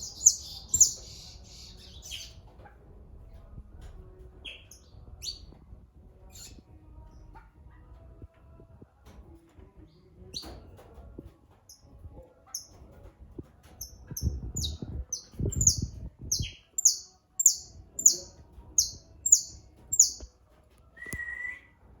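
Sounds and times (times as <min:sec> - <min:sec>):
songbird singing high notes: 0:14.6 - 0:20.3
lower whistled bird note: 0:21.0 - 0:21.8.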